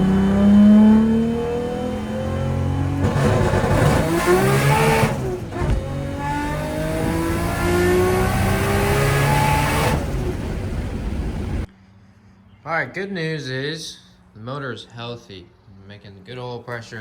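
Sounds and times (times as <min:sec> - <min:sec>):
car engine accelerating hard: 0:00.0 - 0:11.7.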